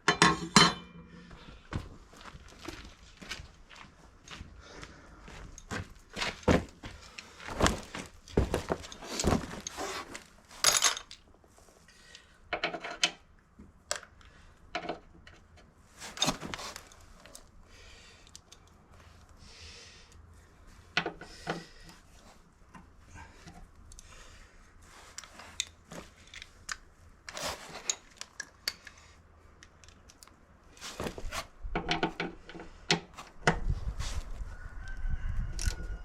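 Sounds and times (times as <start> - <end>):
metal tools clinking and knocking: 0.0 - 1.1, 10.6 - 11.2.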